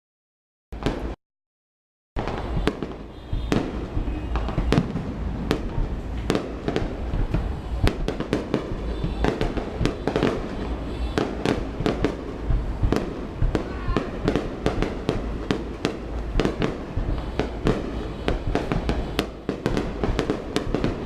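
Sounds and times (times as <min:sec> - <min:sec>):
fireworks bangs and crackles: 0:00.8 - 0:01.2, 0:02.2 - 0:21.0
low rumble: 0:03.9 - 0:08.1, 0:12.4 - 0:13.6.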